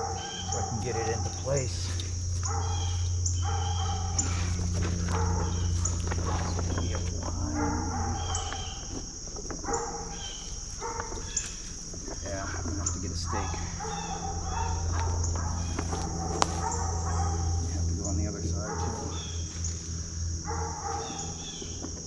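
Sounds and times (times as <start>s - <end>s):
short animal calls: 0.0s - 17.8s
high-pitched insect drone: 0.0s - 22.0s
low hum: 0.0s - 22.0s
faint ticks: 3.4s - 17.3s.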